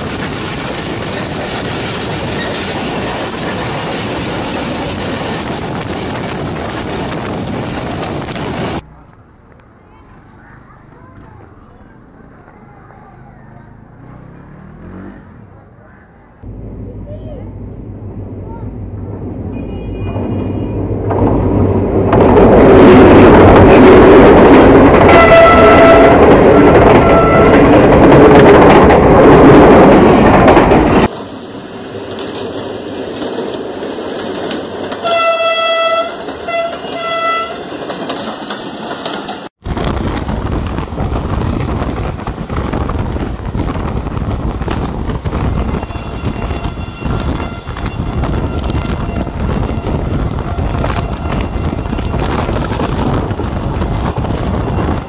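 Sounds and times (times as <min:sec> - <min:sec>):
wind buffeting microphone: 0:00.0 - 0:08.8, 0:39.6 - 0:55.0
passenger train running past: 0:00.0 - 0:08.9, 0:16.4 - 0:55.0
locomotive horn: 0:25.0 - 0:27.8, 0:35.0 - 0:37.6, 0:45.6 - 0:52.6.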